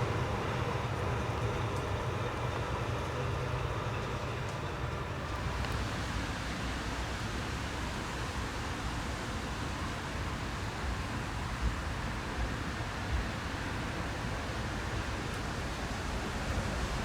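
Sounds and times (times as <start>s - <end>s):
faint ticks: 5.6s - 5.9s.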